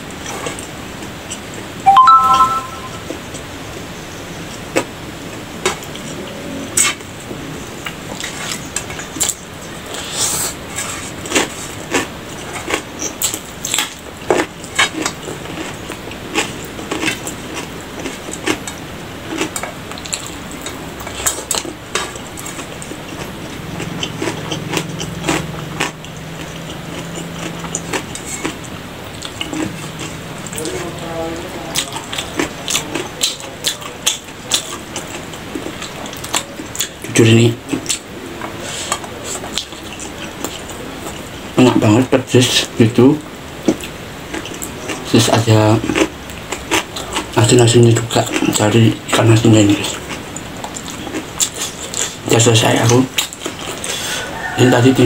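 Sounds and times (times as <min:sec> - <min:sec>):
person chewing with wet smacks: 0:07.8 - 0:31.0, 0:31.7 - 0:41.3, 0:43.6 - 0:54.0.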